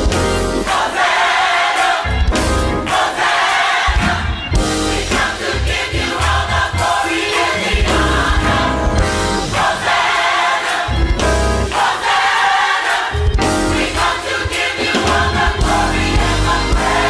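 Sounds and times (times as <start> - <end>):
gospel choir singing with band: 0.0 - 17.0.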